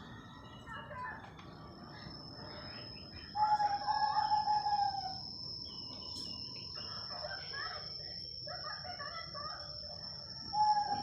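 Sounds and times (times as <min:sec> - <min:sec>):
bird calling: 0:00.0 - 0:07.2, 0:10.5 - 0:11.0.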